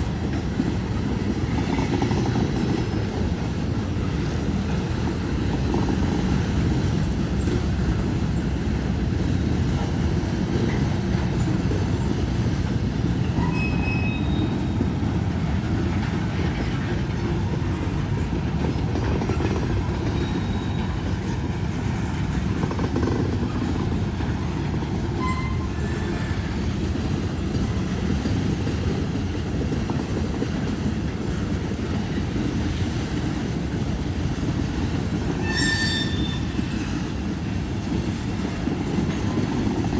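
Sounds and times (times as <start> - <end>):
train wheels rumbling on rail: 0.0 - 39.9
high-pitched wheel squeals: 13.4 - 14.8, 35.4 - 36.6.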